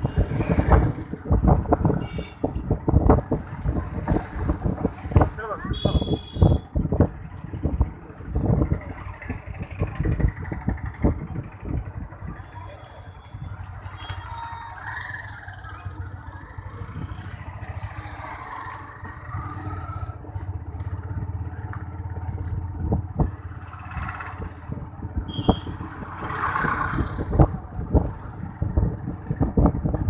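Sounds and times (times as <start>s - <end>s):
vehicle engine rumbling: 0.0s - 30.0s
rushes of noise: 22.1s - 30.0s.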